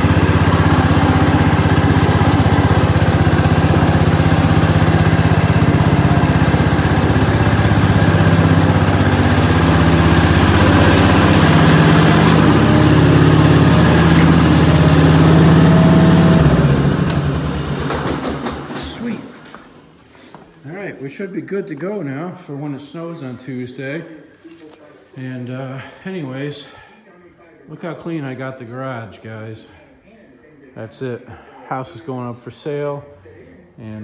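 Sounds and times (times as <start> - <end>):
tractor engine running: 0.0 - 19.4.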